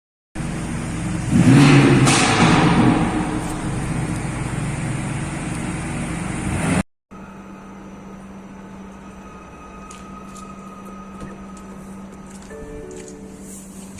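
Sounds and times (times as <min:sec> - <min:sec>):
car engine accelerating hard: 0:00.4 - 0:06.8.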